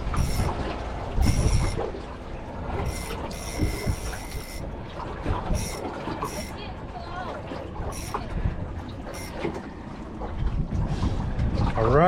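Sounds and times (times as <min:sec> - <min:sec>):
wind rumble on microphone: 0:00.0 - 0:05.9, 0:06.6 - 0:12.0
fishing reel whirring: 0:00.0 - 0:06.8, 0:07.8 - 0:09.7.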